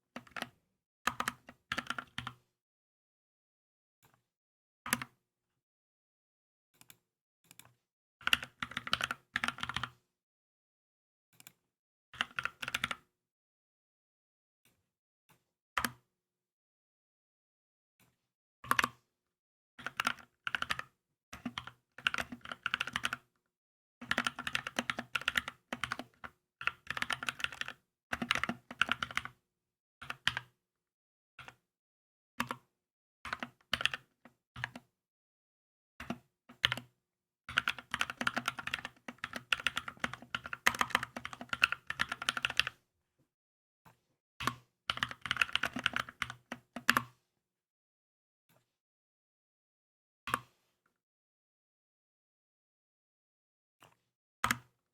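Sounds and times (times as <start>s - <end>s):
mechanical keyboard typing: 0.2s - 0.5s, 1.1s - 2.3s, 21.4s - 23.2s, 24.0s - 29.4s, 33.3s - 34.8s, 37.5s - 42.8s, 44.9s - 47.0s.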